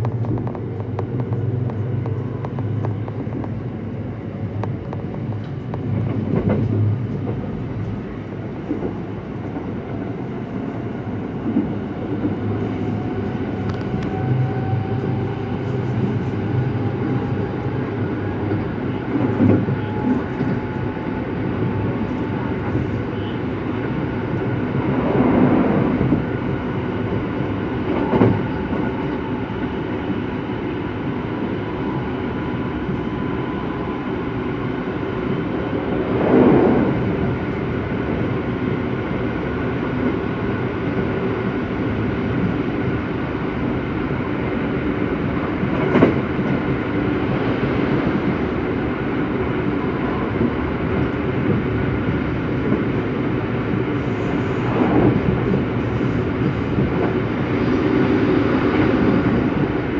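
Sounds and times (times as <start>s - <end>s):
train wheels rumbling on rail: 0.0s - 59.9s
train knocks: 4.5s - 8.0s, 16.7s - 22.4s.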